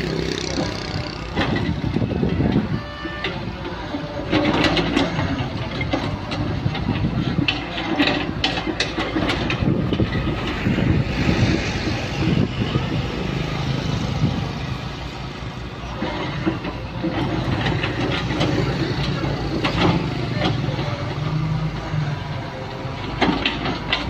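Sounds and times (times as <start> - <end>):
diesel excavator engine running: 0.0 - 24.0
metallic clanks and knocks: 0.4 - 2.6, 4.2 - 10.3, 23.0 - 24.0.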